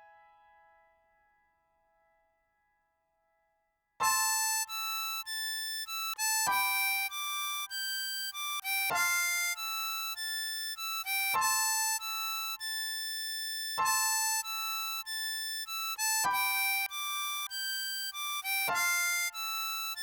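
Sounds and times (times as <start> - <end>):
harmonica playing slow melody: 4.0 - 20.0.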